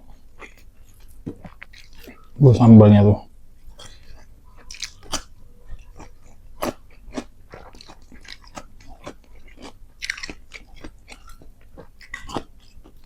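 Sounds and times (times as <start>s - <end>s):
chewing and crunching food: 0.0s - 2.4s, 3.6s - 13.0s.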